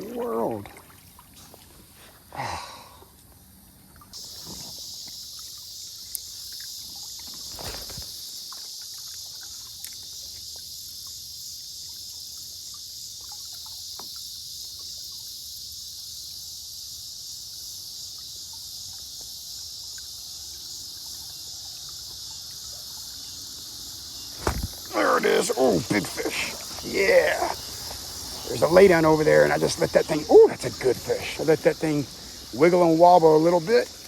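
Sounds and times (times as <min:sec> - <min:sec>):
insect drone: 0:00.0 - 0:34.0
low thump: 0:24.4 - 0:24.8.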